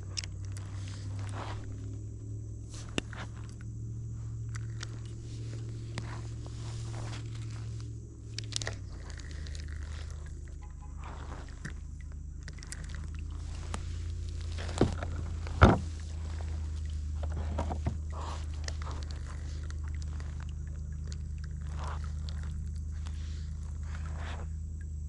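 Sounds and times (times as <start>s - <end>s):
low hum: 0.0s - 25.0s
gear clicking in plastic kayak: 2.8s - 3.7s, 4.4s - 25.0s
thumps: 14.5s - 16.1s.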